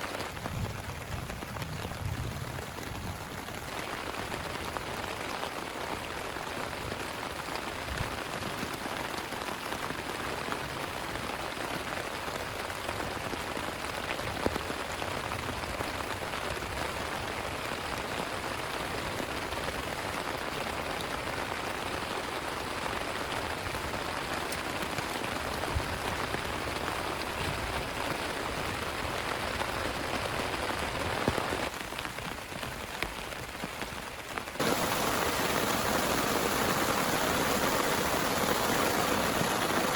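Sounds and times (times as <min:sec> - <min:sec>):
heavy rain falling: 0:00.0 - 0:39.9
louder raindrop hits: 0:34.4 - 0:39.9.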